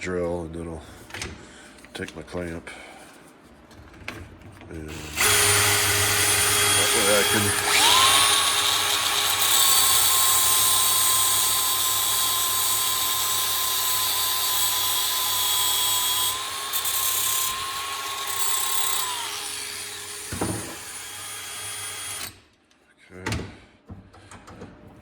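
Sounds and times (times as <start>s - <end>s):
electric drill whining: 4.9s - 22.4s.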